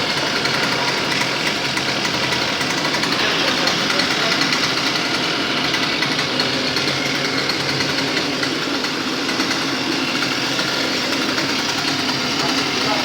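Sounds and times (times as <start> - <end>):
small outboard motor running: 0.0 - 13.0.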